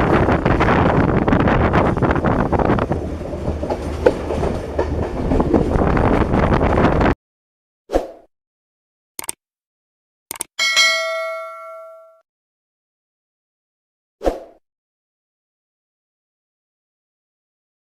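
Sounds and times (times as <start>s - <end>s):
train wheels clattering on rails: 0.0s - 7.2s
brief clicks: 9.2s - 9.4s, 10.3s - 10.5s.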